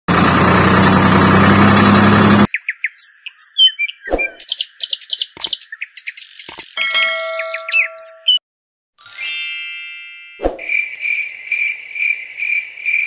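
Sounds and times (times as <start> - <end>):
birds chirping: 2.4 - 8.4.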